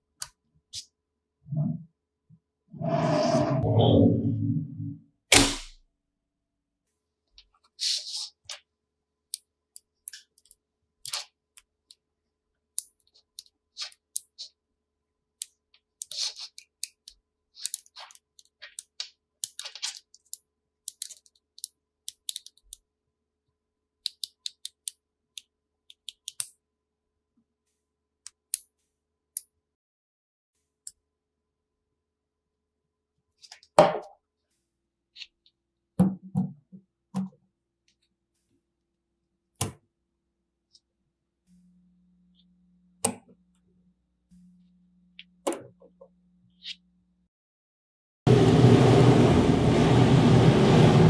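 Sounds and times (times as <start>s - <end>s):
plastic tiles clicking together: 17.6s - 22.8s.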